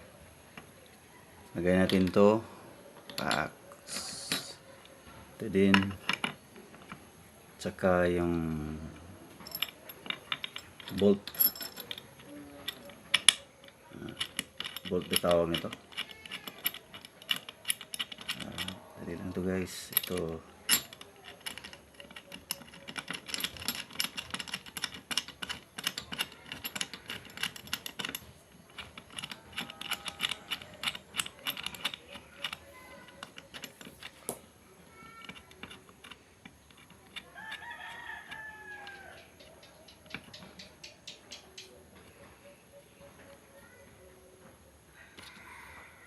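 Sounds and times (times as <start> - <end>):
small metal parts clicking: 3.0 - 5.0, 5.6 - 7.0, 8.9 - 41.7
rooster crowing: 37.2 - 39.4, 44.9 - 46.0.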